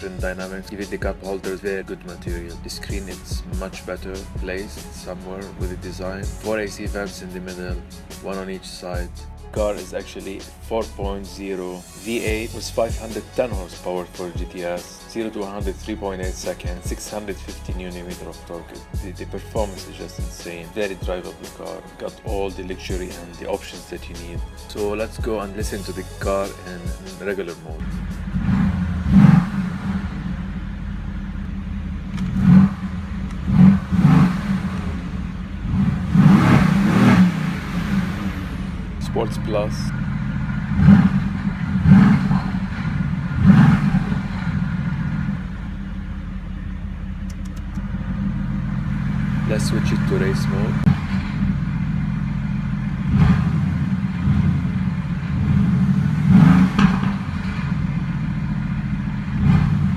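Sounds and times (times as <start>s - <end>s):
car engine idling: 0.0s - 59.9s
engine revving blips: 27.8s - 59.9s.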